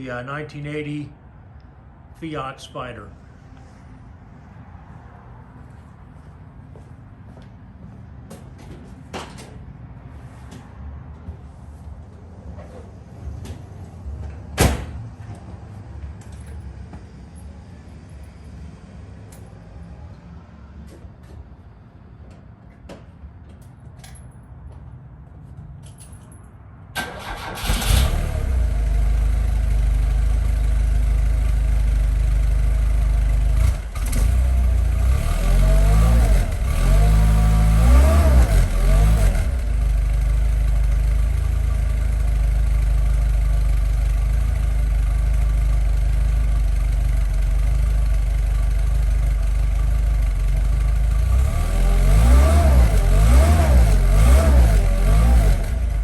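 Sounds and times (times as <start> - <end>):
car engine starting and revving: 27.0 - 30.7, 33.2 - 40.2, 51.0 - 56.0.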